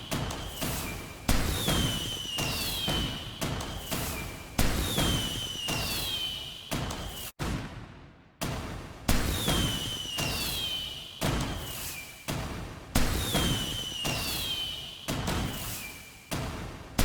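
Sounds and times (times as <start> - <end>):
firework bangs: 0.0 - 12.4, 13.0 - 16.1.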